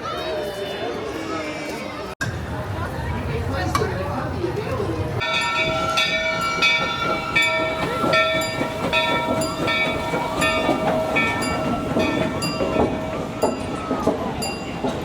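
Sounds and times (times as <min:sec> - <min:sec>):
crowd voices: 0:00.0 - 0:15.0
bell clanging: 0:05.2 - 0:15.0.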